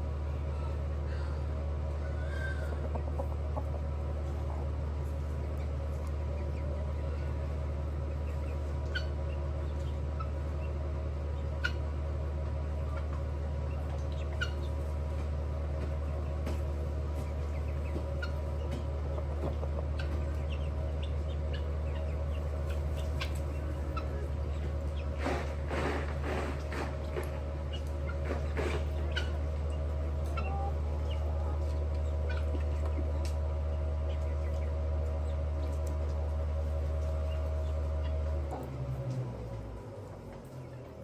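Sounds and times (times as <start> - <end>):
chickens calling: 0.0 - 41.0
steady low hum: 0.0 - 41.0.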